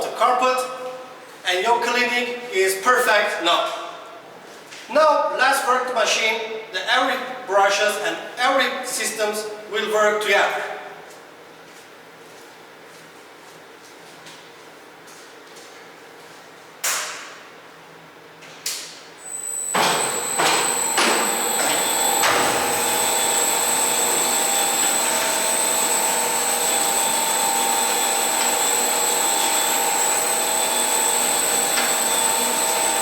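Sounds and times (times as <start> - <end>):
carpet washing machine whining: 19.3 - 33.0
machine clunks: 19.7 - 22.9.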